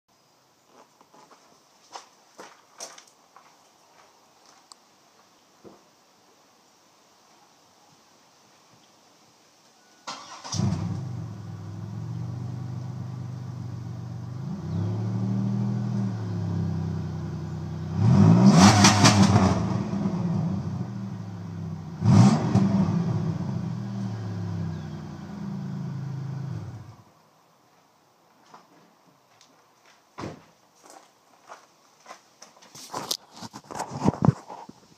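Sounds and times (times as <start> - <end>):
car engine idling and revving: 10.5 - 27.0.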